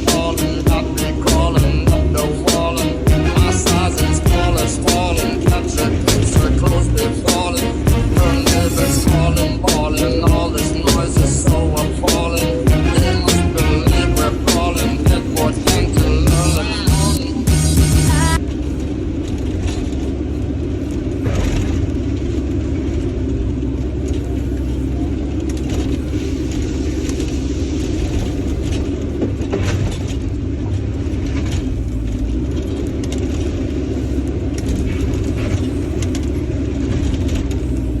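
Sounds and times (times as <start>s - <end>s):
heavy machinery engine rumble: 0.0s - 38.0s.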